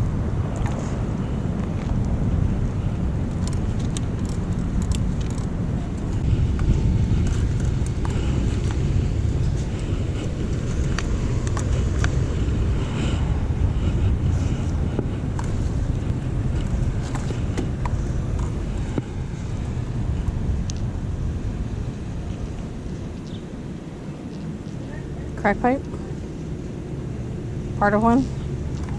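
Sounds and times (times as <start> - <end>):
low outdoor rumble: 0.0 - 28.9.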